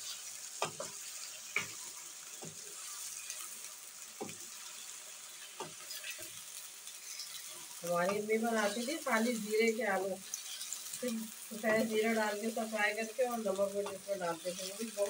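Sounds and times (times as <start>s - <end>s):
potato slices sizzling in oil: 0.0s - 15.0s
spatula knocking and scraping pan: 0.5s - 1.8s, 4.2s - 6.4s, 7.1s - 8.9s, 13.7s - 15.0s.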